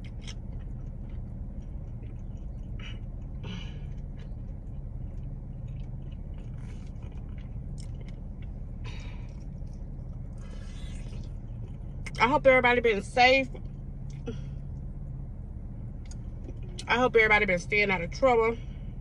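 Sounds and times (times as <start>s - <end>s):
person chewing: 0.0s - 12.2s
low rumble in car: 0.0s - 19.0s.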